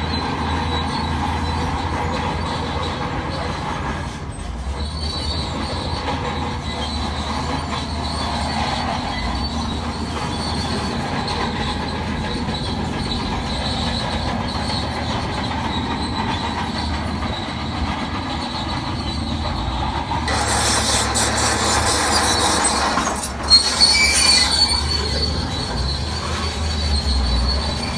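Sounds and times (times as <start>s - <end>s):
bulldozer diesel engine: 0.0s - 27.9s
steel tracks squealing and clanking: 0.0s - 27.9s
rushing noise: 5.5s - 27.9s.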